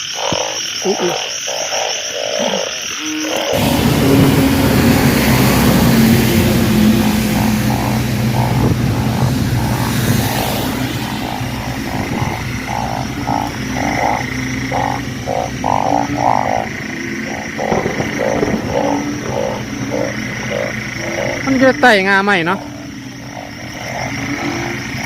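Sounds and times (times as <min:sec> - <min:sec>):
bullfrogs croaking: 0:00.0 - 0:25.0
low steady hum: 0:03.6 - 0:17.6.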